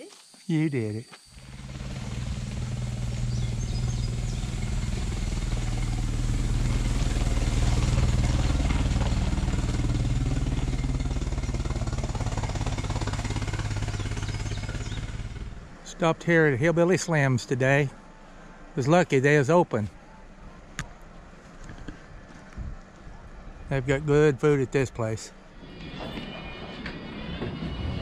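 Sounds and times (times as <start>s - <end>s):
car engine running: 1.3s - 16.8s.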